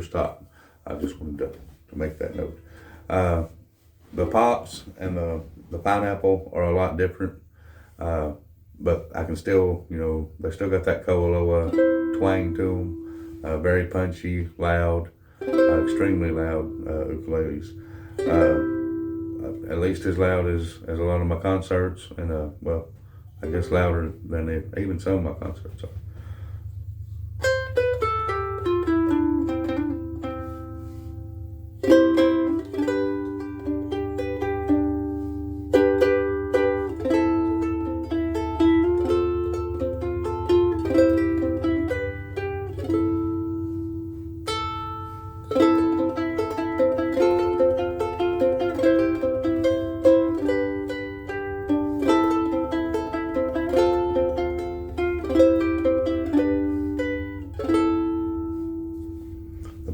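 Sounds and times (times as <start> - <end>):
ukulele plucked chords and melody: 11.2 - 13.6, 15.4 - 20.9, 23.4 - 25.5, 27.3 - 59.9.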